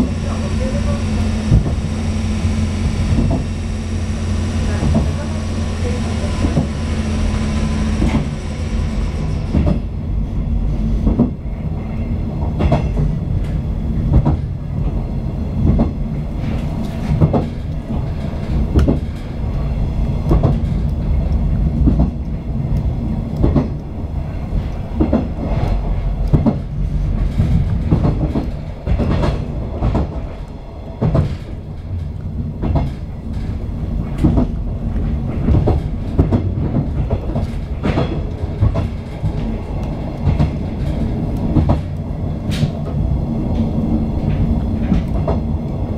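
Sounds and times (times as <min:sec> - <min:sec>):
electric train rumbling: 0:00.0 - 0:45.9
wheels clicking over rail joints: 0:15.6 - 0:45.9.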